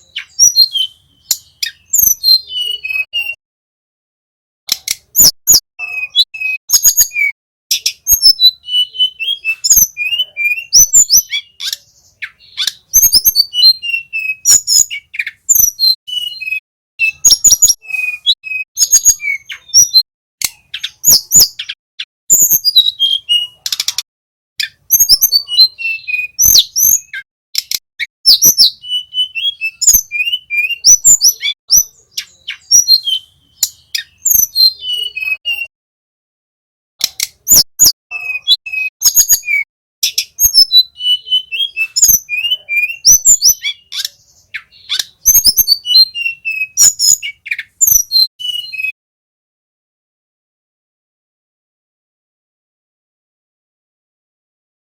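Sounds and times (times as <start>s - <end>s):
bird singing chirps and trills: 0.0s - 3.4s, 4.7s - 35.7s, 37.0s - 49.0s
sharp bird clicks: 1.2s - 2.2s, 4.7s - 6.8s, 9.5s - 13.2s, 19.5s - 21.8s, 23.5s - 25.1s, 26.4s - 28.7s, 33.6s - 34.6s, 37.0s - 39.2s, 41.8s - 48.3s.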